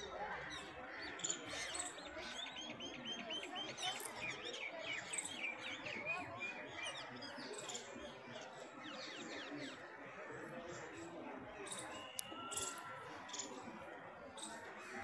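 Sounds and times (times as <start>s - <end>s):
birds chirping and calling: 0.4s - 7.9s.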